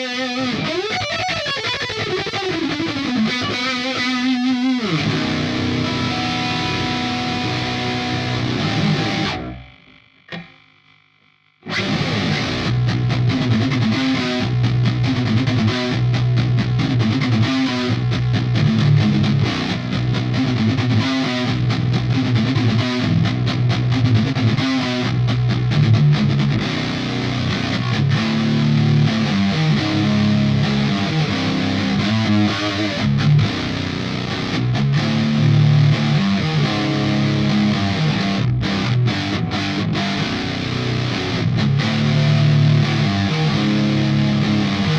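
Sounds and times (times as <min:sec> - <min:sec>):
palm-muted guitar riffing: 0:00.0 - 0:10.5, 0:11.6 - 0:44.9
distorted electric guitar: 0:00.0 - 0:44.9.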